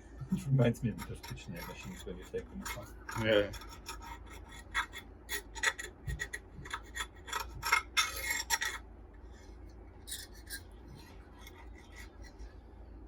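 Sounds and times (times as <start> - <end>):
rasping scraping strokes: 0.4 - 8.8.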